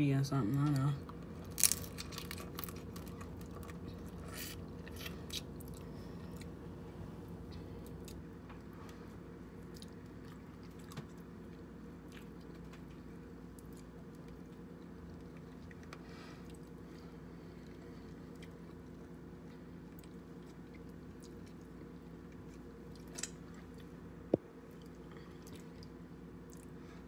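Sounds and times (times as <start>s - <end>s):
steady low hum: 0.0s - 27.0s
crab shell crunching: 1.0s - 6.6s
chewing: 1.1s - 6.6s, 7.5s - 24.0s, 24.6s - 26.8s.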